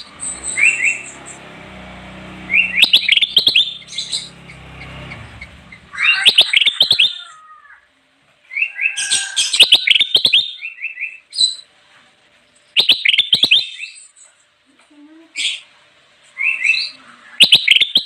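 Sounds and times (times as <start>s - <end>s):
bulbul singing: 0.0s - 7.2s.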